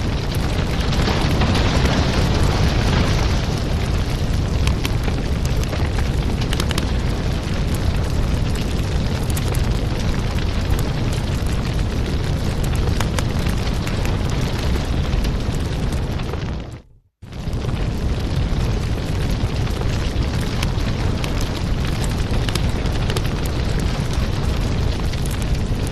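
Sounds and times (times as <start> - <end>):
wood fire crackling: 0.0 - 25.9.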